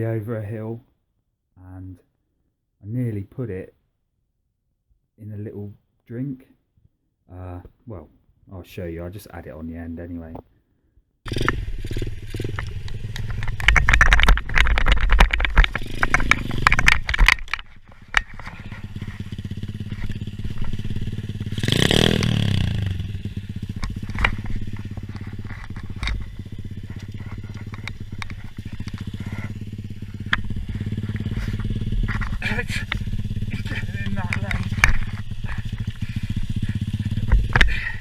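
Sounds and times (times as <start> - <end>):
engine clattering and buffeting: 11.3 - 38.0
pit bike engine running: 11.3 - 38.0.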